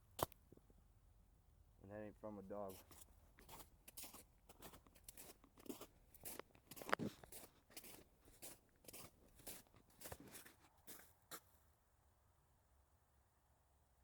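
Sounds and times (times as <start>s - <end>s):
footsteps crunching on frozen ground: 2.6s - 11.6s.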